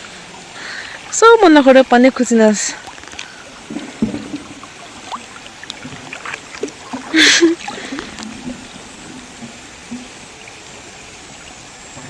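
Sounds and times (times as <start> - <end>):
floodwater flowing: 0.0 - 12.0.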